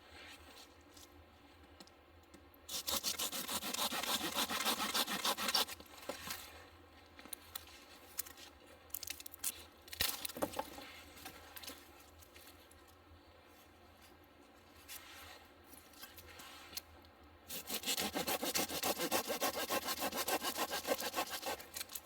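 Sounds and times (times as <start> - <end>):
rough rasping scrape: 2.7 - 6.3, 17.5 - 22.0.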